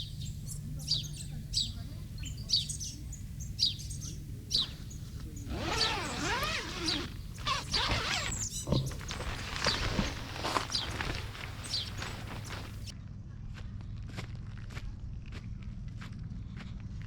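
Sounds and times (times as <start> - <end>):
birds chirping: 0.0 - 12.9.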